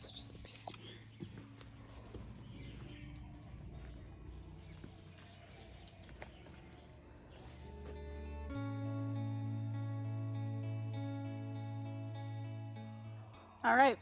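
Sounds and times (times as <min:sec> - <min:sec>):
footsteps on dirt trail: 0:00.8 - 0:08.4.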